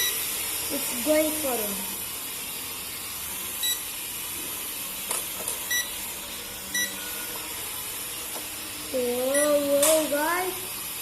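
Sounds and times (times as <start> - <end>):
short electronic beeps: 3.6 - 3.8, 5.7 - 6.0, 6.7 - 7.3.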